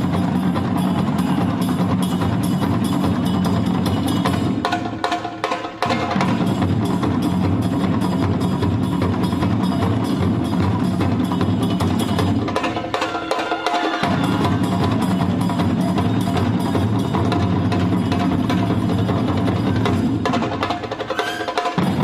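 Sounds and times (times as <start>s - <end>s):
deep drums beating: 0.0s - 21.0s.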